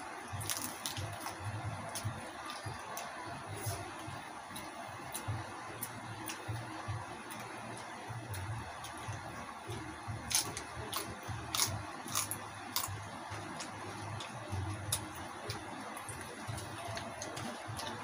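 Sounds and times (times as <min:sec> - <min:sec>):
sharp crunching: 0:00.4 - 0:01.4, 0:10.3 - 0:13.0.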